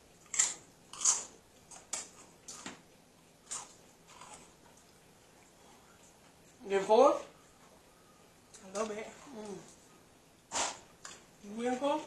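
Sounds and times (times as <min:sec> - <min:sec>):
crunchy chips being chewed: 0:00.1 - 0:06.2.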